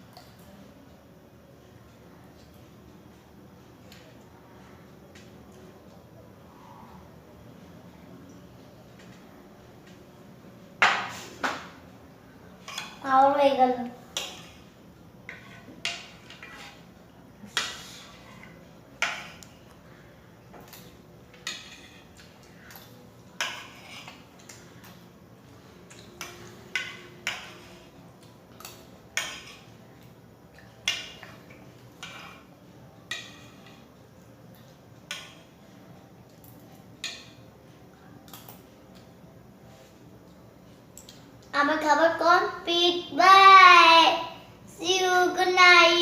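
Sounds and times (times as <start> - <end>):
cutlery scraping on plate: 12.6 - 13.0, 15.3 - 16.9, 17.5 - 19.5, 20.6 - 24.6, 25.9 - 28.0, 30.8 - 32.5, 33.1 - 33.8.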